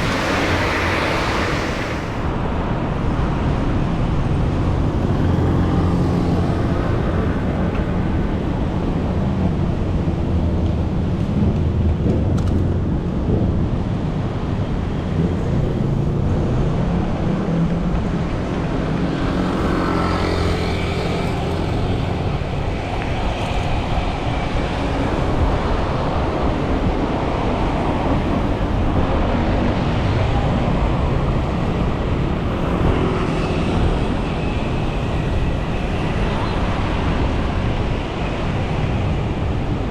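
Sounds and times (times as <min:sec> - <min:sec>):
traffic rumble: 0:00.0 - 0:02.5
vehicles passing close by: 0:00.0 - 0:02.5, 0:15.1 - 0:39.8.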